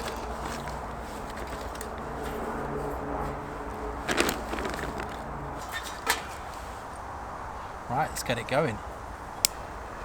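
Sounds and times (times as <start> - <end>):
kindling being handled: 4.0 - 6.8.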